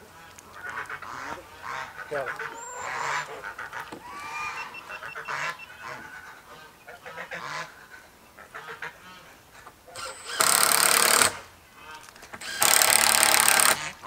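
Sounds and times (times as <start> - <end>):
waterfowl calling: 0.0 - 10.4.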